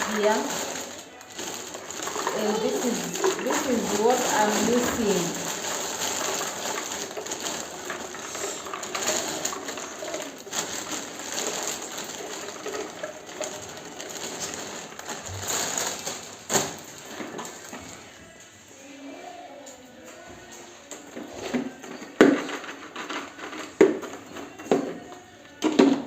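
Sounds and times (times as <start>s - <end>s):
snack packets rustling: 0.0s - 18.2s.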